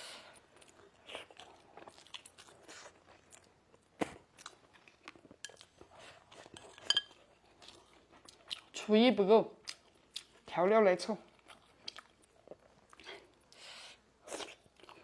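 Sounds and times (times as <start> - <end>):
person chewing crunchy food: 0.3 - 8.8, 11.4 - 13.6, 14.2 - 15.0.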